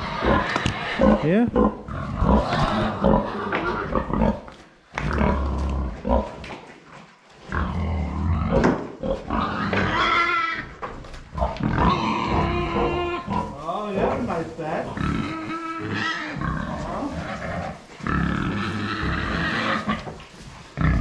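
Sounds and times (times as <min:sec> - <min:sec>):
pigs grunting: 0:00.0 - 0:06.7, 0:07.4 - 0:21.0
high-pitched pig call: 0:09.3 - 0:10.7, 0:15.0 - 0:20.0.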